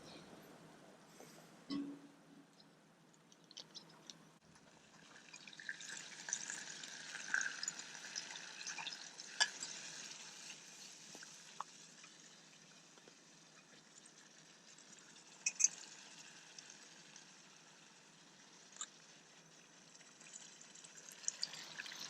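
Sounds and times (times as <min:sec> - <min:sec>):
food sizzling over campfire: 0:04.8 - 0:22.0.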